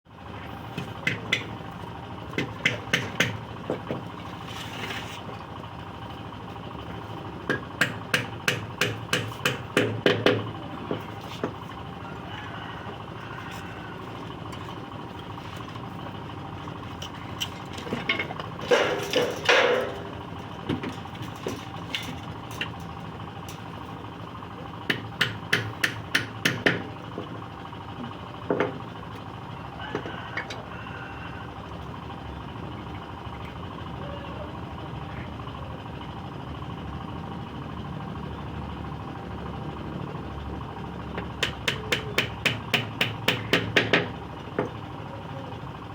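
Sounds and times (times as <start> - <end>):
hammer striking wood: 2.4 - 4.0, 7.5 - 10.5, 24.9 - 26.9, 41.4 - 44.1.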